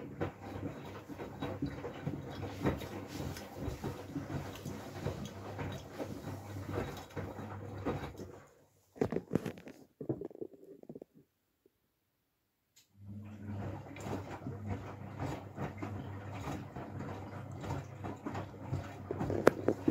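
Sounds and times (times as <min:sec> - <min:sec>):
washing machine drum turning: 0:00.0 - 0:08.4, 0:13.3 - 0:19.9
thumps: 0:09.0 - 0:11.2.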